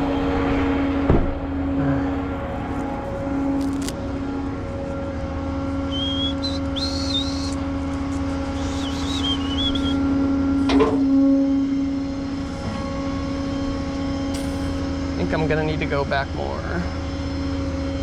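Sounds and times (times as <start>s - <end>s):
truck engine running: 0.0s - 18.0s
high wavering whistle: 5.8s - 7.7s, 8.3s - 12.2s.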